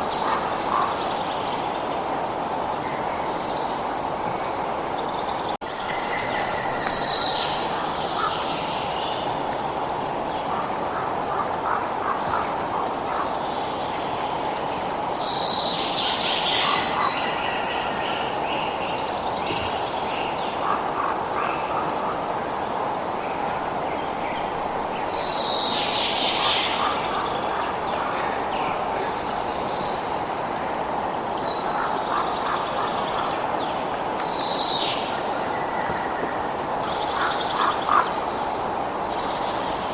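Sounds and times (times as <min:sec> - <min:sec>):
birds singing: 0:00.0 - 0:03.8, 0:23.9 - 0:30.2, 0:31.2 - 0:39.9.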